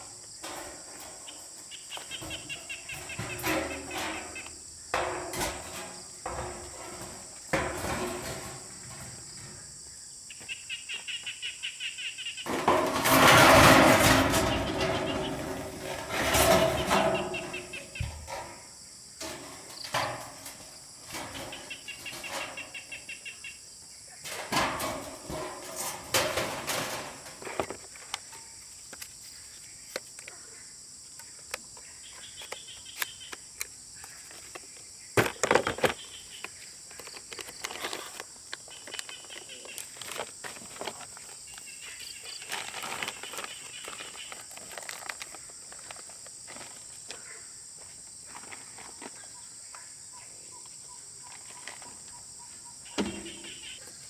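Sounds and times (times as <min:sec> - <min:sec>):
rustles: 0:00.0 - 0:11.2, 0:12.4 - 0:30.4, 0:34.0 - 0:49.4
bird chirps: 0:10.3 - 0:12.5, 0:49.2 - 0:54.0
knocks: 0:53.0 - 0:53.8.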